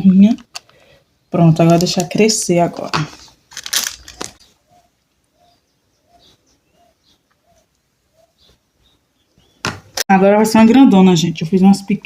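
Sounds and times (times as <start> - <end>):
bird calling: 3.9 - 10.0.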